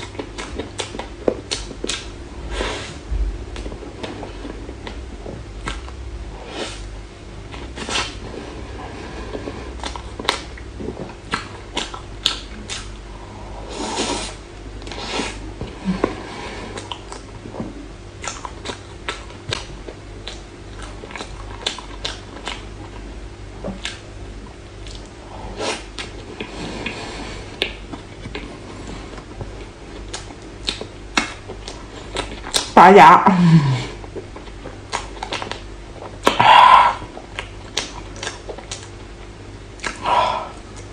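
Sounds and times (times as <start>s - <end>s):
wet chewing: 0.0s - 2.1s, 9.2s - 12.9s, 16.0s - 24.1s, 24.8s - 32.8s, 34.0s - 40.9s
faint steady hum: 0.0s - 40.9s
mouth clicks and smacks: 9.8s - 12.9s, 30.1s - 32.8s, 39.8s - 40.1s.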